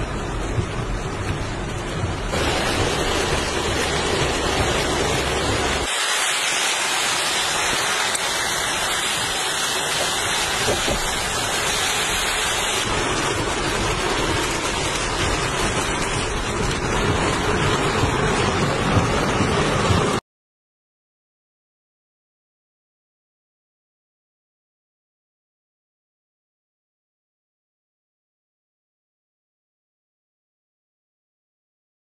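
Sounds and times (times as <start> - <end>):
low rumble: 0.0 - 5.9, 7.6 - 20.2
heavy rain pouring: 0.0 - 20.2.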